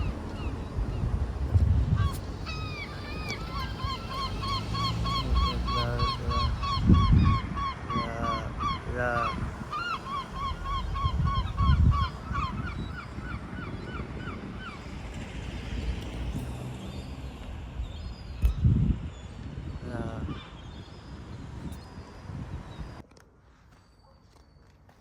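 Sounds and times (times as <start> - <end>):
other bird calls: 0.0 - 15.0
bird honking calls: 2.0 - 14.8.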